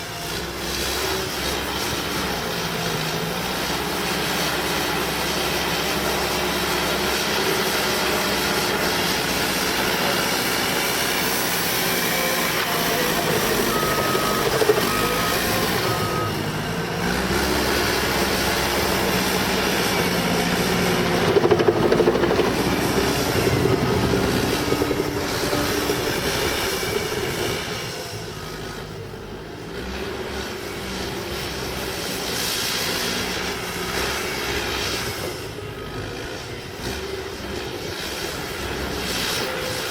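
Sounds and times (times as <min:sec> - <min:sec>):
bulldozer diesel engine working: 0:00.0 - 0:39.9
backup alarm beeps: 0:12.9 - 0:16.5.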